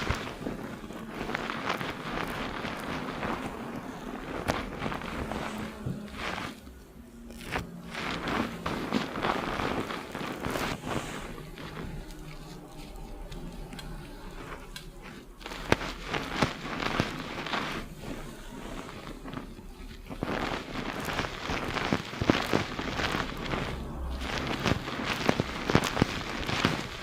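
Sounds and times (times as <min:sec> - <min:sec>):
fingers scrubbing lathered hair: 0:00.0 - 0:27.0.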